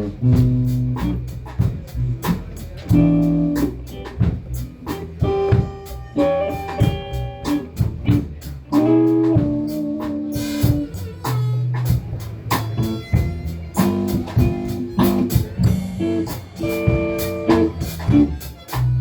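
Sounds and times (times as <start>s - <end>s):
blues guitar notes: 0.0s - 19.0s
drum kit steady beat: 0.0s - 19.0s.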